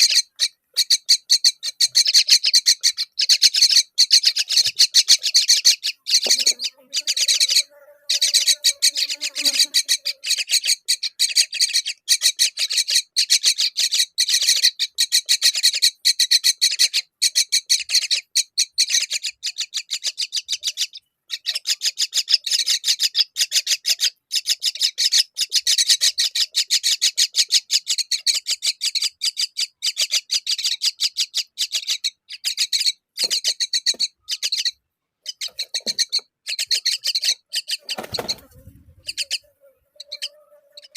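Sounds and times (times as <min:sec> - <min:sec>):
chicks begging calls: 0:00.0 - 0:40.9.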